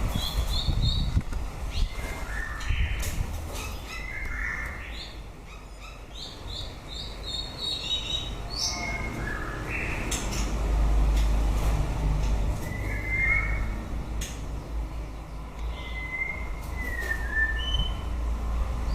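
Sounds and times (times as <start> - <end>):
bird singing whistled notes: 7.0 - 10.0, 12.6 - 13.8, 15.7 - 18.2.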